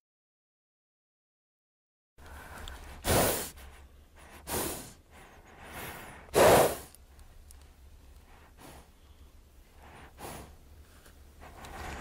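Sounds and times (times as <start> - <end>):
horse snorting: 6.2 - 7.0
low steady rumble: 7.0 - 12.0.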